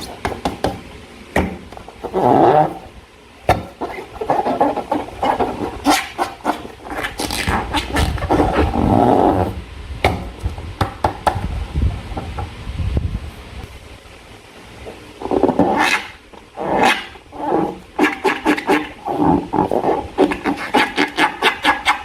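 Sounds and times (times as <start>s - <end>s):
rubbery balloon squeaks: 0.0s - 0.2s, 1.8s - 9.6s, 15.2s - 22.0s.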